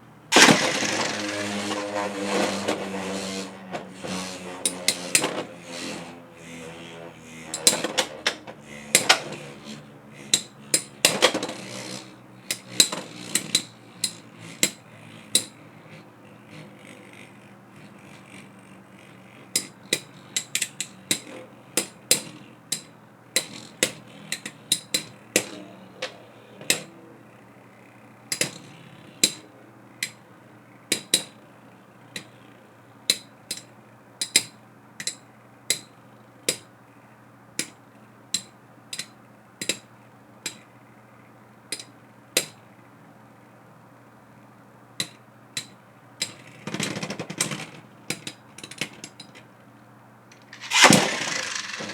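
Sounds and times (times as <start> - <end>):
spinning tops clacking: 0.3 - 8.6, 50.4 - 51.9
rough rasp: 0.3 - 10.7, 50.5 - 51.9.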